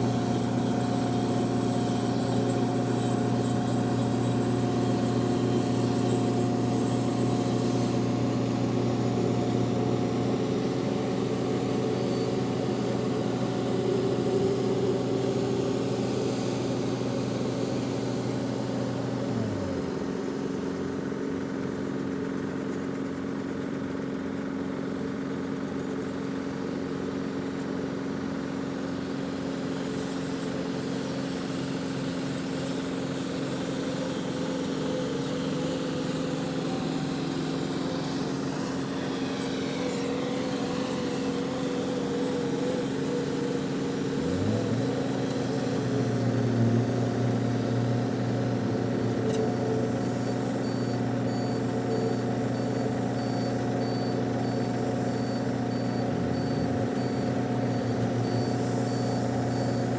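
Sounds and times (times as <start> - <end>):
truck engine running: 0.0 - 27.5, 30.6 - 59.9.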